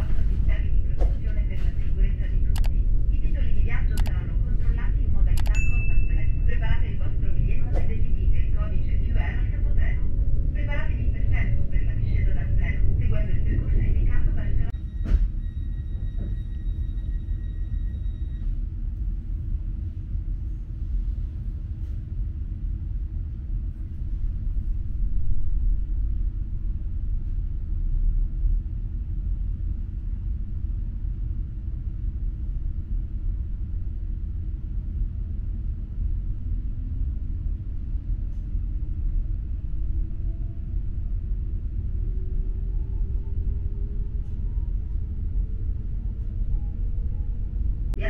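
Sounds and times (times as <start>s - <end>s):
train low rumble: 0.0s - 48.0s
high steady tone: 5.3s - 7.4s.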